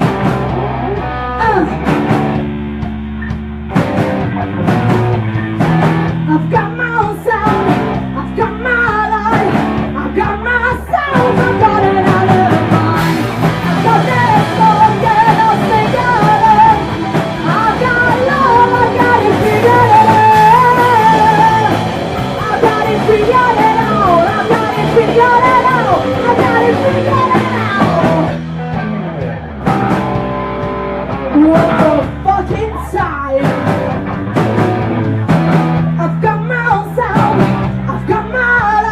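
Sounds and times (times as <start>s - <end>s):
punk rock band playing: 0.0s - 38.9s
wavering lead melody: 11.4s - 32.3s.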